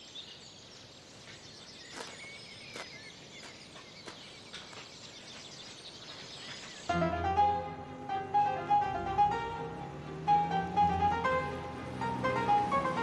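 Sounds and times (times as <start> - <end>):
birds chirping: 0.0 - 13.0
plucked-string music: 6.9 - 13.0.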